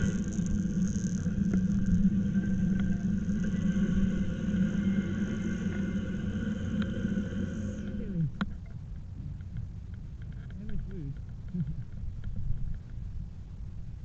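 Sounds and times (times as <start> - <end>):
rushing noise: 0.0 - 8.4
motor humming: 0.0 - 9.4.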